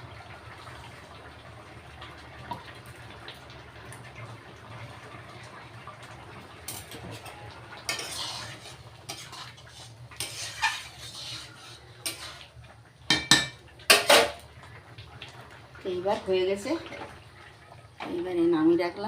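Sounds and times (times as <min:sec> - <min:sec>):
metal spoon scraping a pot: 0:07.9 - 0:12.4.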